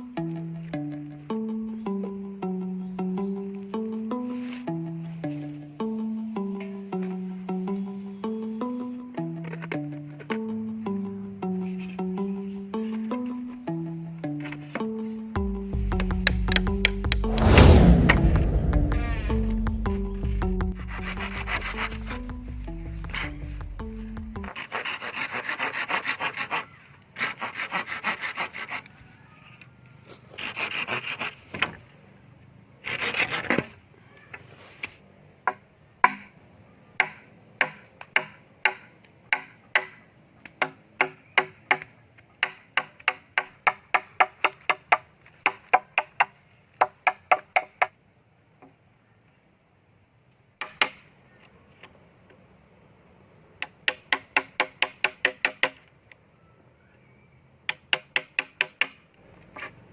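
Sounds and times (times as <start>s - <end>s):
hand saw cutting wood: 20.8s - 22.3s, 24.5s - 29.0s, 30.3s - 31.7s, 32.8s - 33.8s.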